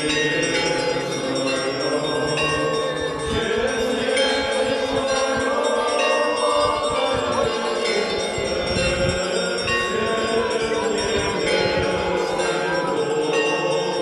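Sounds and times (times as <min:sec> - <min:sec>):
church bells ringing: 0:00.0 - 0:14.0.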